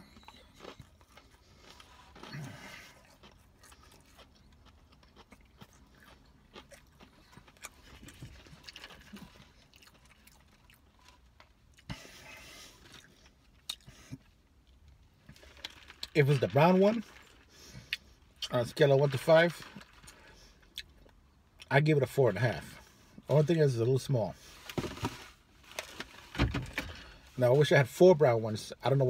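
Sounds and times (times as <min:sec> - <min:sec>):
chewing crispy food: 0:00.0 - 0:21.8.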